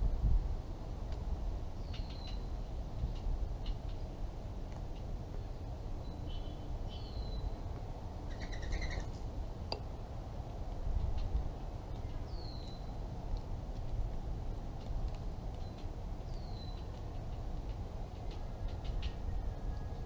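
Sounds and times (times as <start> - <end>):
low outdoor rumble: 0.0 - 20.0
songbirds calling: 1.7 - 4.1, 4.8 - 9.9, 11.1 - 13.1, 15.4 - 20.0.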